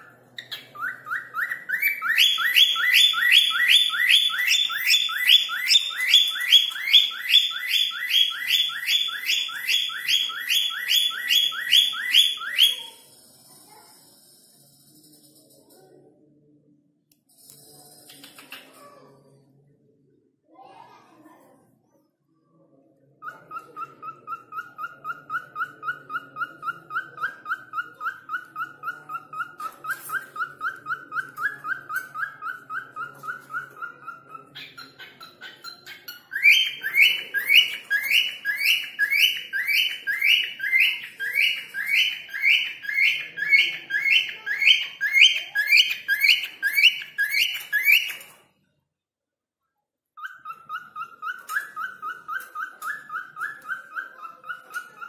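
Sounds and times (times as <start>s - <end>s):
bird whistling repeated notes: 0.8s - 13.0s.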